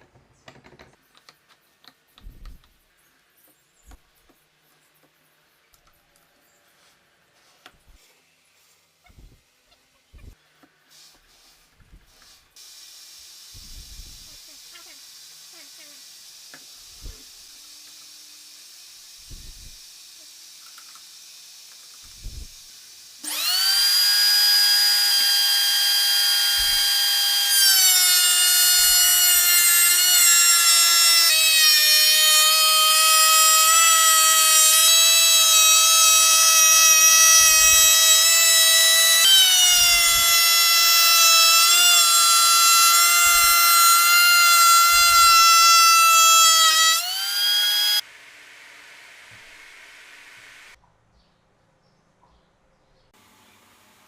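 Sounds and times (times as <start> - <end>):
power tool whining: 23.2 - 48.0.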